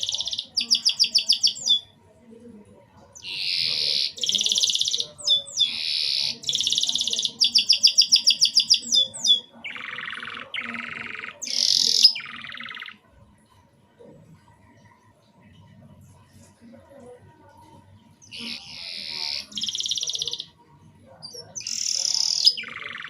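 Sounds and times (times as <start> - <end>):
canary singing trills: 0.0 - 2.0, 3.0 - 13.1, 18.0 - 23.0.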